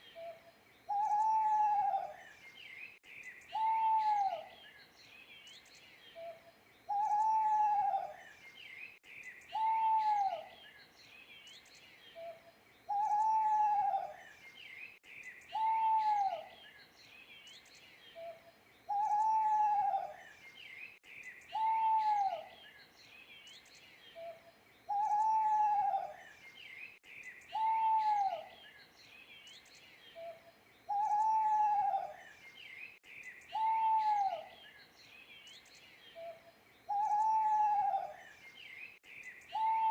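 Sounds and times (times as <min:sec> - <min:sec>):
small birds chirping: 0:00.0 - 0:39.9
owl hooting: 0:00.2 - 0:02.2, 0:03.5 - 0:04.5, 0:06.9 - 0:08.2, 0:09.5 - 0:10.5, 0:12.2 - 0:14.2, 0:15.5 - 0:16.5, 0:18.2 - 0:20.2, 0:21.5 - 0:22.5, 0:24.2 - 0:26.2, 0:27.5 - 0:28.5, 0:30.2 - 0:32.2, 0:33.5 - 0:34.6, 0:36.2 - 0:38.2, 0:39.5 - 0:39.9.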